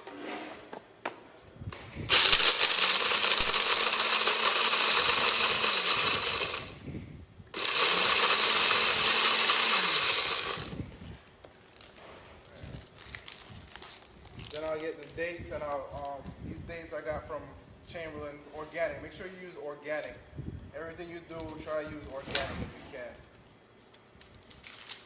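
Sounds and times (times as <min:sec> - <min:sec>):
blender crushing nuts: 0:02.1 - 0:06.8, 0:07.5 - 0:10.8.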